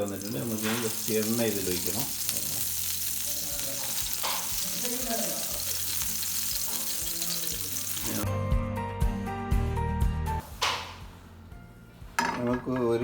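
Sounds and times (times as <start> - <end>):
oil sizzling on a griddle: 0.0 - 8.2
background music: 5.9 - 13.0.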